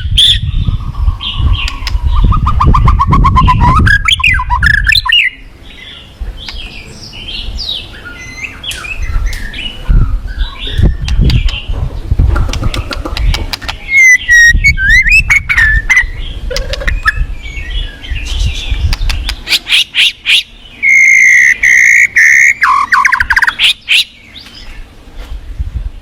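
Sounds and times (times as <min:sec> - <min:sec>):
bird chattering trill: 0:00.2 - 0:11.7, 0:12.5 - 0:24.3
bird singing whistled phrases: 0:01.3 - 0:11.6, 0:13.8 - 0:18.5, 0:19.4 - 0:24.2.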